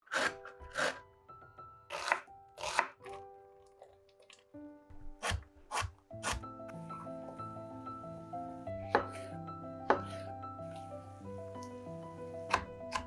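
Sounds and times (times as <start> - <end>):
background music: 0.0 - 13.0
knife chopping on cutting board: 0.1 - 1.0, 1.9 - 3.2, 5.0 - 6.5, 8.9 - 10.9, 12.5 - 13.0.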